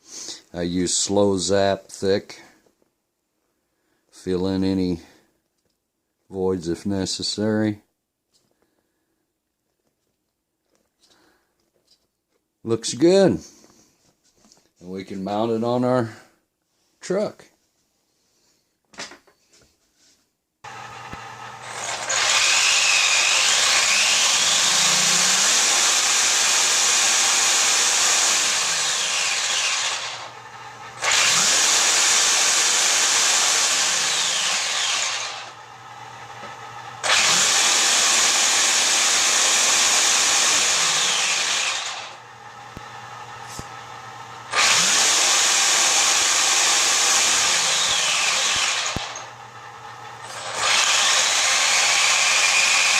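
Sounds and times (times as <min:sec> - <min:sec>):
small power tool motor: 0:20.7 - 0:52.9.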